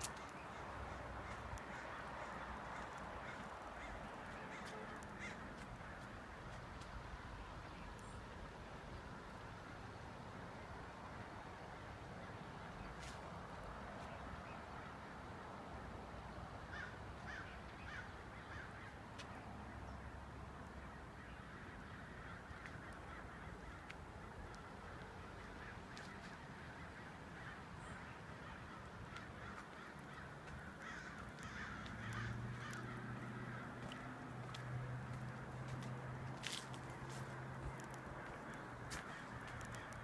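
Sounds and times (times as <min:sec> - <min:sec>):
flock of birds cawing: 0:00.0 - 0:06.8, 0:16.6 - 0:40.0.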